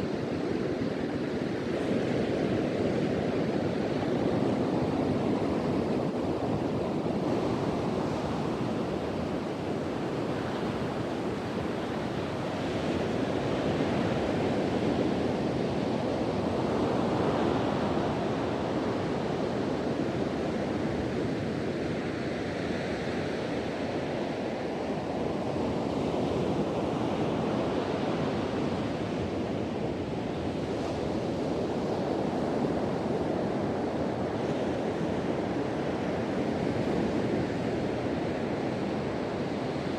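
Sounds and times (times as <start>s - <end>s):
ocean surf washing on beach: 1.5s - 23.4s
wind blowing: 4.5s - 14.1s.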